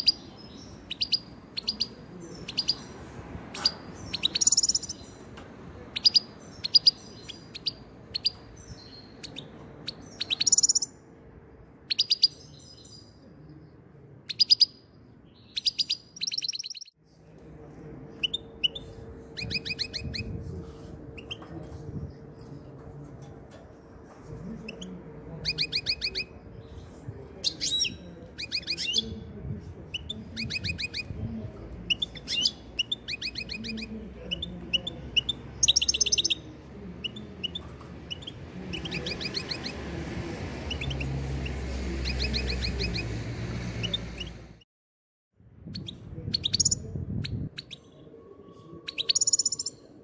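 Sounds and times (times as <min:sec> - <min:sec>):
goldfinches chirping: 0:03.6 - 0:05.2.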